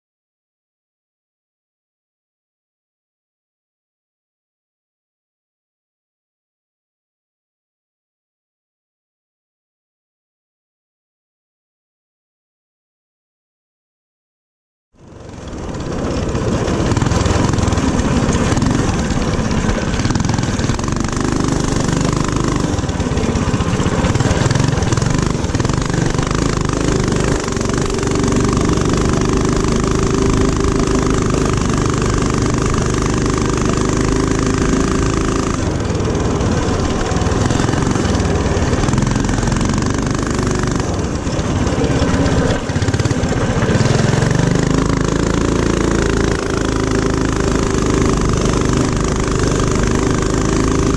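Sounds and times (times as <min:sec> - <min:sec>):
mini-bike engine running hard: 0:15.0 - 0:50.9.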